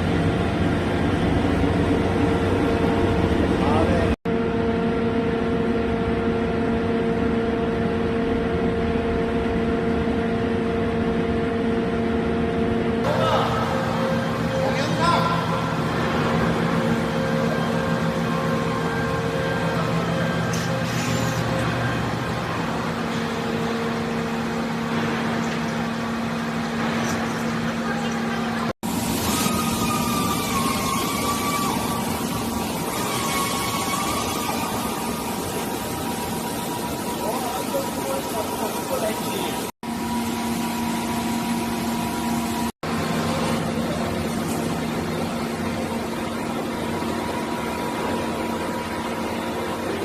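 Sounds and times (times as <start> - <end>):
boring mill hum and whine: 0.0 - 50.0.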